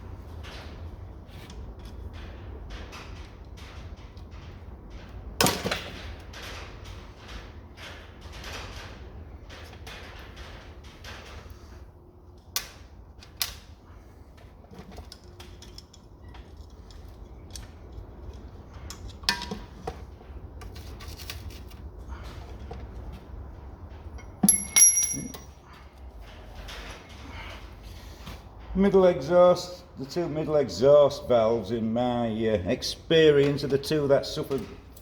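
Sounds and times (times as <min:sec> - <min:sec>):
ringing metal clinks: 0:24.2 - 0:25.7.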